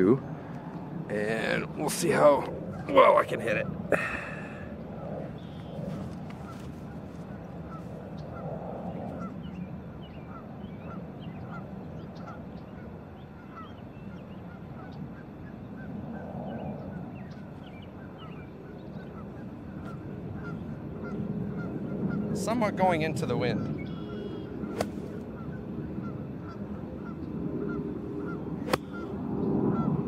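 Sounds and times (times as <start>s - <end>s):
bird calling: 1.4s - 22.4s, 23.4s - 30.0s.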